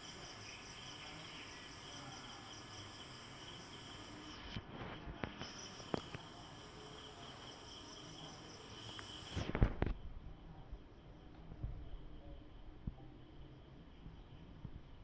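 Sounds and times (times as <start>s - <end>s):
high-pitched insect chorus: 0.0s - 9.5s.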